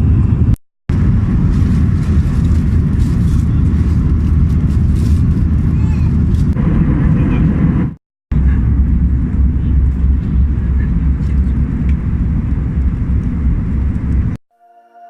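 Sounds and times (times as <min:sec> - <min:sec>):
airplane cabin engine roar: 0:00.0 - 0:14.4.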